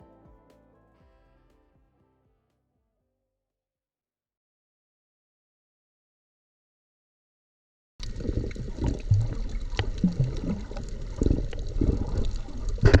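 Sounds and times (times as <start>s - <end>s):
low bubbling blips: 8.0s - 12.0s
underwater sloshing and gurgling: 8.0s - 13.0s.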